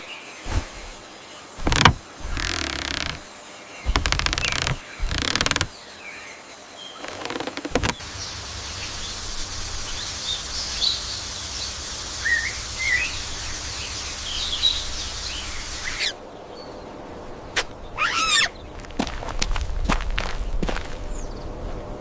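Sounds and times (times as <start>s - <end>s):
birds chirping: 0.0s - 3.2s, 3.8s - 5.8s, 6.8s - 19.1s
steady outdoor hiss: 0.0s - 22.0s.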